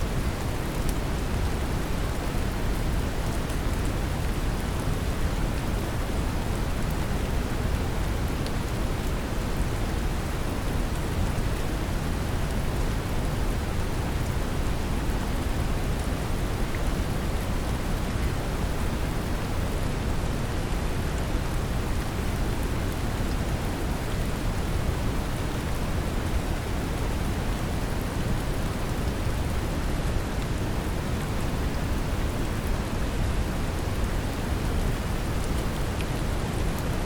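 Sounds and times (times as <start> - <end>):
brown noise hiss: 0.0 - 37.0
rain patter: 0.0 - 37.0.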